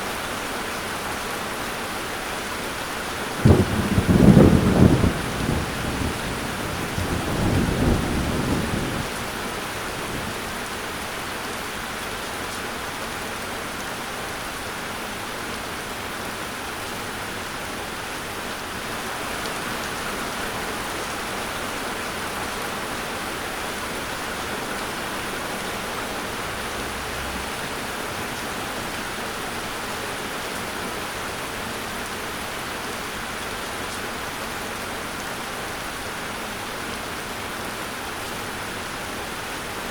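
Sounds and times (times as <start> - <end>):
steady rain falling: 0.0 - 39.9
low rumble of thunder: 3.4 - 10.6.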